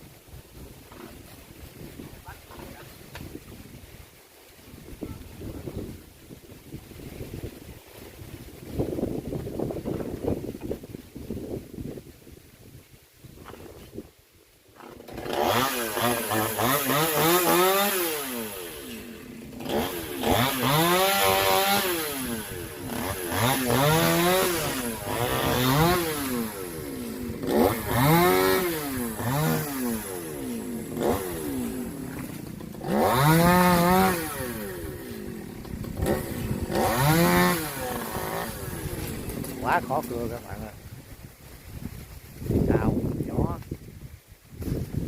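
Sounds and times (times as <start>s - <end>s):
chainsaw engine revving: 14.8s - 40.7s.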